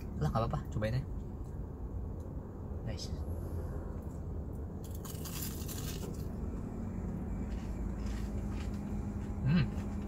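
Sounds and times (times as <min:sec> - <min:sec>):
faint chewing of crisp food: 0:04.8 - 0:10.0.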